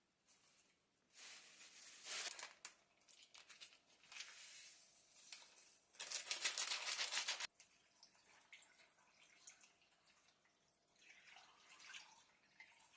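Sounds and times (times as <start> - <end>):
plastic packaging crinkling and tearing: 1.2 - 4.5, 5.3 - 7.5.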